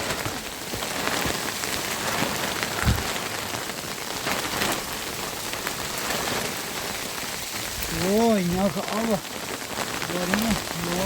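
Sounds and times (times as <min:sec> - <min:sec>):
close raindrop hits: 0:00.0 - 0:11.0
rain falling: 0:00.0 - 0:11.0
low thump: 0:02.8 - 0:03.2.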